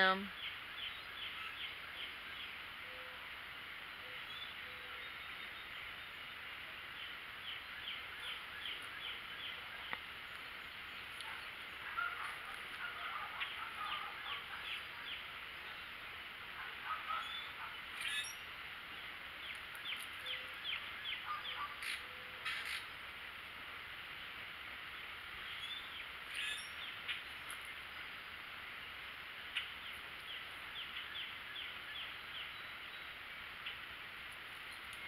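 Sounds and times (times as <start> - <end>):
songbirds calling: 0.0 - 35.0
steady outdoor hiss: 0.0 - 35.0.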